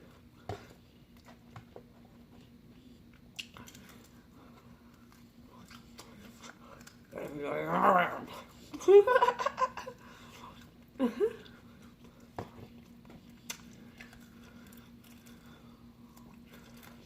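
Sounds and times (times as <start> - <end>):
chewing mouth sounds: 11.4 - 17.0.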